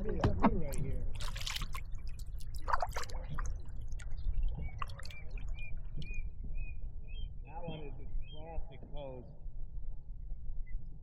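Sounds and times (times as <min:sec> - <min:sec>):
water dripping and plinking: 0:00.0 - 0:06.2
water splashing: 0:00.0 - 0:06.2.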